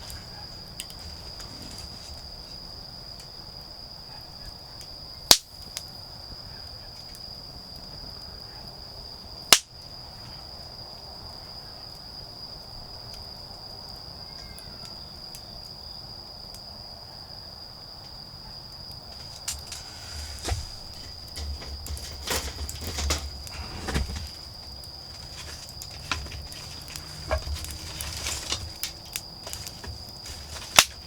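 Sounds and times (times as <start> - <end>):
campfire wood popping: 0.0 - 3.6, 5.3 - 6.1, 9.4 - 10.1, 18.8 - 31.0
faint fire crackles: 0.0 - 31.0
insects trilling: 0.0 - 31.0.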